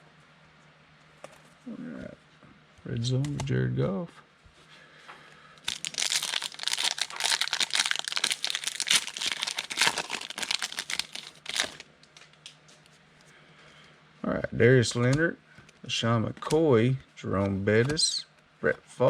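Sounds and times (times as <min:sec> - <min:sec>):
foil wrapper tearing and crinkling: 0:05.6 - 0:11.9.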